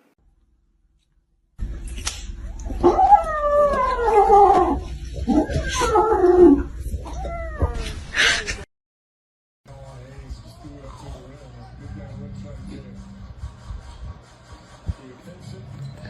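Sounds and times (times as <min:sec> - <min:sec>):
animal wailing calls: 0:02.6 - 0:07.9.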